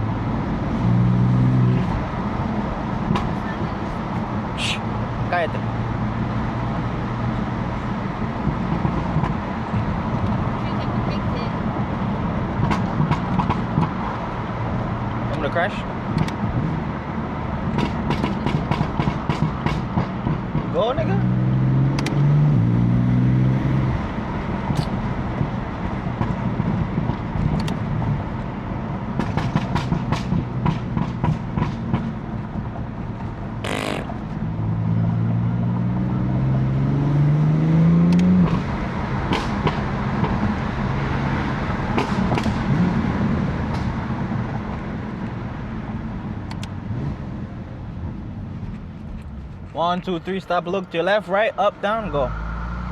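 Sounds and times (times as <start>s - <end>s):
car engine revving: 16.2s - 26.4s, 33.6s - 40.4s
exhaust pops and crackles: 17.7s - 20.9s, 29.1s - 34.4s, 41.9s - 43.0s.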